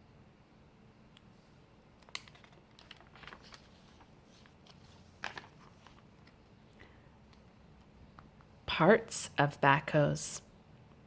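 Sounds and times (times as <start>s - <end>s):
paper page rustling: 2.0s - 6.6s.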